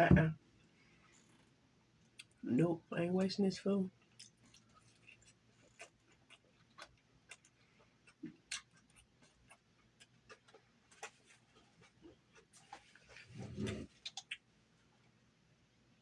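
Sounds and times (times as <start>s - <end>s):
person chewing food: 4.0s - 14.5s.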